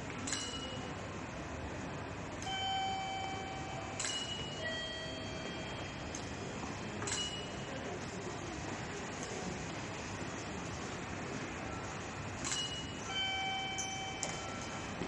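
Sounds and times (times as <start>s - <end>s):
station chime tones: 13.0s - 15.0s.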